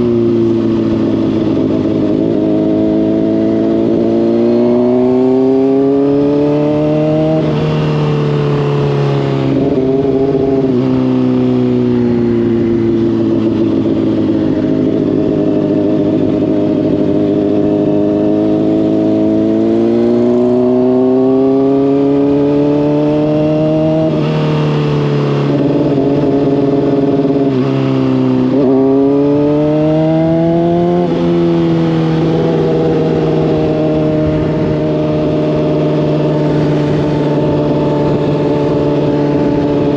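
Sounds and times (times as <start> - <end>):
motorcycle engine revving: 0.0 - 39.9
wind noise: 8.4 - 39.9.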